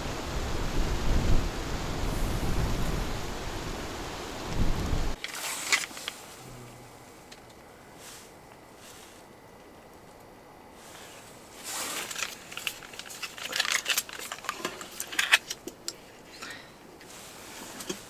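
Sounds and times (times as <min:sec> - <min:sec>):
rustling and crinkling: 0:05.1 - 0:18.0.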